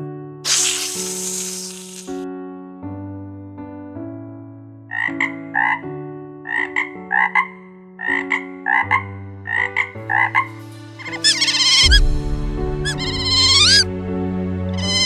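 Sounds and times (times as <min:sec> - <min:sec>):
short animal calls: 0:00.5 - 0:02.2, 0:14.8 - 0:15.0
background music of sustained chords: 0:02.2 - 0:15.0
high warbling call: 0:12.8 - 0:13.9.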